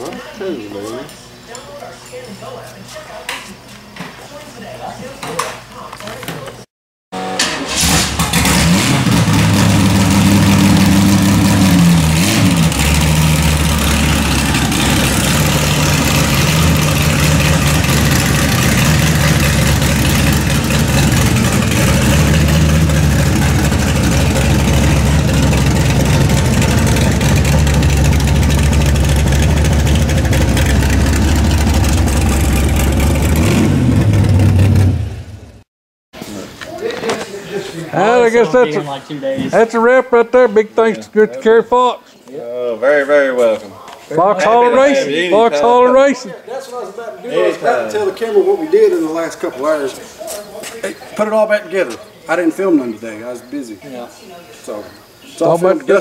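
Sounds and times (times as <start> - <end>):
car engine running: 8.2 - 35.6.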